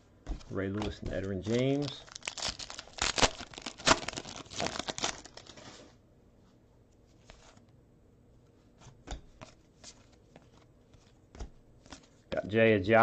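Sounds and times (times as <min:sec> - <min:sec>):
foil wrapper crinkling and tearing: 0:00.8 - 0:05.7.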